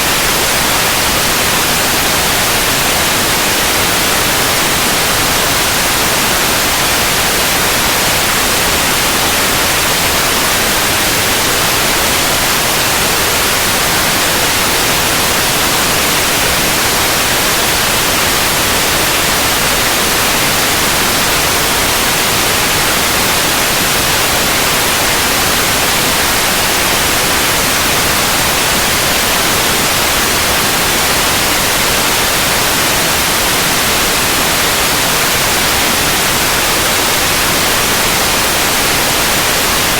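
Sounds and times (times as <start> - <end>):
steady white noise: 0.0 - 39.9.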